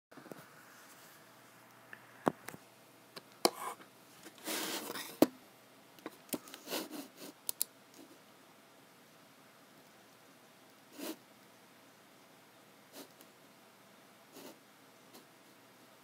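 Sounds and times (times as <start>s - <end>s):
computer mouse clicks: 7.4s - 8.0s.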